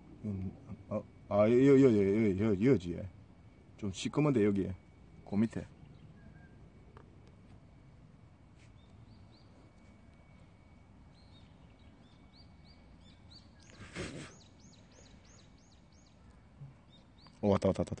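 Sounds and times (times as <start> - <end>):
outdoor background noise: 0.0 - 18.0
small bird chirping: 11.0 - 18.0.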